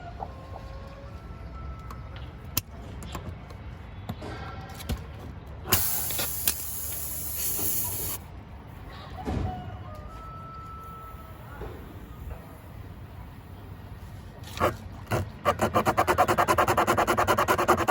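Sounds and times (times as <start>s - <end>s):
air hissing: 5.7s - 8.3s.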